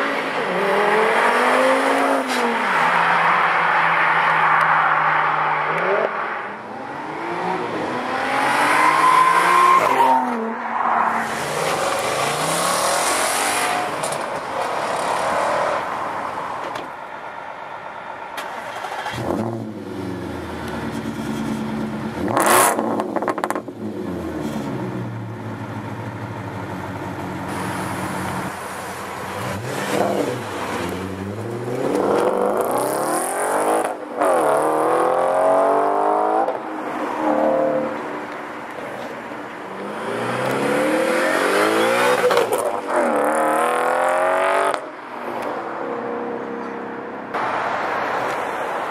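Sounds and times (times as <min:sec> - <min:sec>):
car engines revving: 0:00.0 - 0:17.2, 0:18.4 - 0:48.9.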